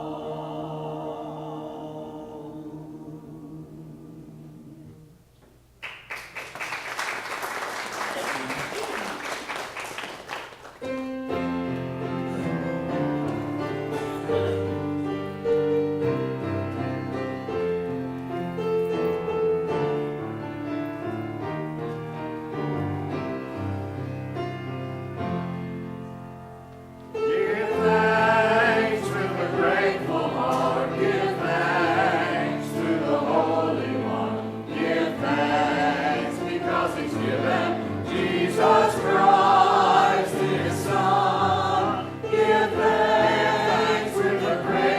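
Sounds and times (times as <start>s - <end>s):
choir singing: 0.0s - 5.2s, 27.1s - 44.9s.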